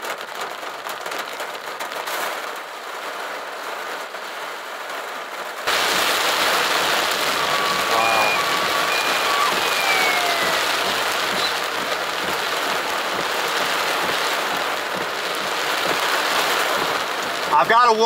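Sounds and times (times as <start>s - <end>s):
heavy rain: 0.0s - 18.0s
raindrops clicking close by: 0.0s - 18.0s
wind: 0.0s - 18.0s.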